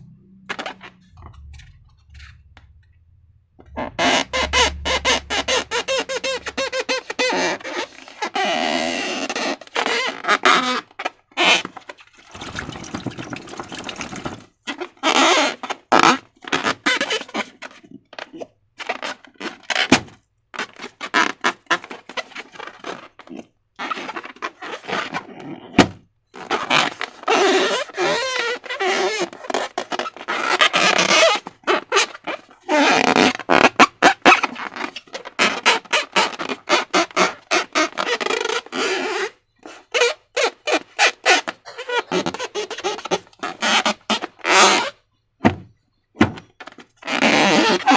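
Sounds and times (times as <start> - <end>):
rubber balloons squeaking: 0.0 - 2.7, 3.6 - 47.9
slime squelching: 12.0 - 14.4.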